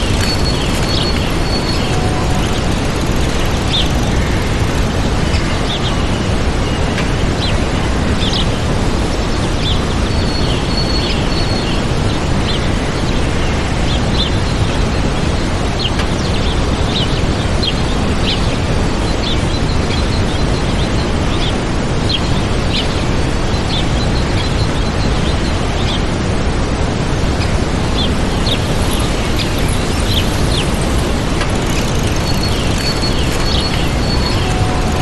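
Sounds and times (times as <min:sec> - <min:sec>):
small birds chirping: 0:00.0 - 0:06.8, 0:27.4 - 0:35.0
waterfall rushing: 0:00.0 - 0:12.4, 0:20.4 - 0:35.0.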